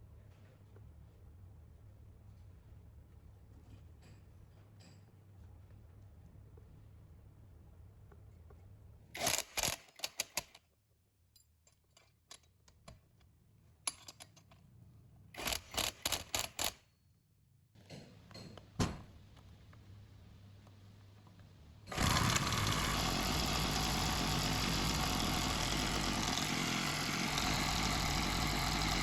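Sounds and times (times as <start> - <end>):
metal parts and tools clicking: 9.2 - 10.6, 13.9 - 14.6, 15.4 - 16.8.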